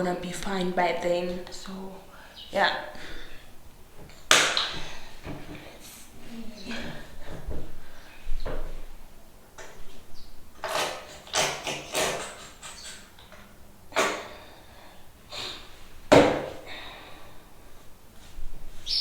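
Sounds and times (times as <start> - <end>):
objects knocking and clattering: 3.9 - 5.8, 6.8 - 9.0, 16.1 - 16.7.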